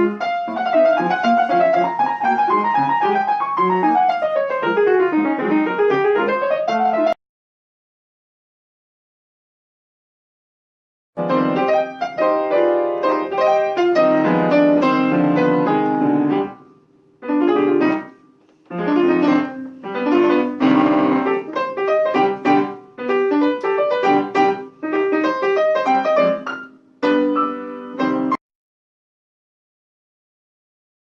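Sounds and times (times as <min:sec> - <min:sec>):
piano melody and chords: 0:00.0 - 0:07.2, 0:11.2 - 0:28.4.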